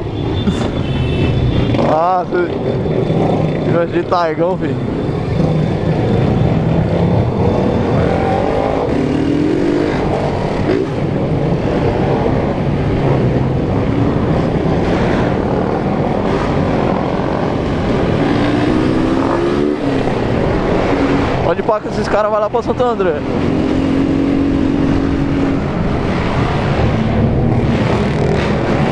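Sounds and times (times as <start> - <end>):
motorcycle engines running: 0.0 - 28.9
riding wind noise: 0.0 - 28.9.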